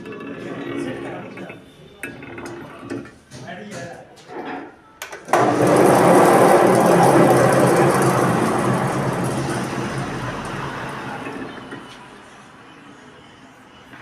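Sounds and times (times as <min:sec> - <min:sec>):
machine humming and whirring: 0:05.2 - 0:12.6.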